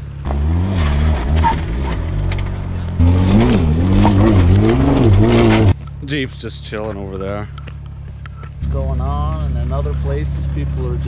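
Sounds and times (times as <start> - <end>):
car engine revving hard: 0.2 - 5.8
wheels spinning on rock: 1.0 - 5.8.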